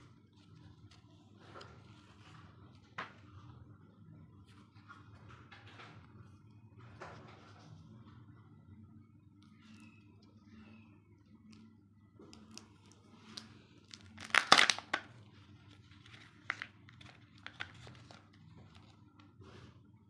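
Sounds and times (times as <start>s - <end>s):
foil wrapper crinkling: 13.8s - 18.9s
foil wrapper ripping: 13.9s - 15.1s.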